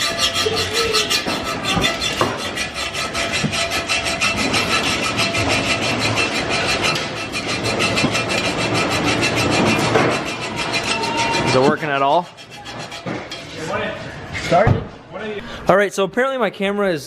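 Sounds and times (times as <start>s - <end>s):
tool grinding exhaust pipe: 0.0s - 13.6s.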